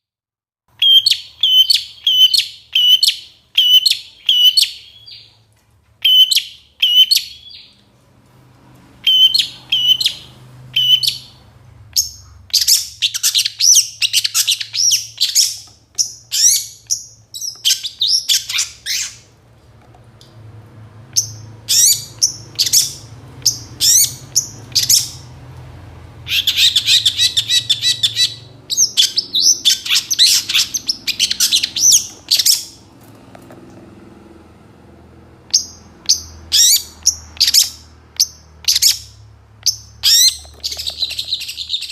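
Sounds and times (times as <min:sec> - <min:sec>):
bird singing chirps and whistles: 0:00.8 - 0:05.3, 0:06.0 - 0:07.7, 0:09.0 - 0:11.4, 0:12.0 - 0:19.2, 0:21.2 - 0:25.3, 0:26.3 - 0:32.8, 0:35.5 - 0:41.9.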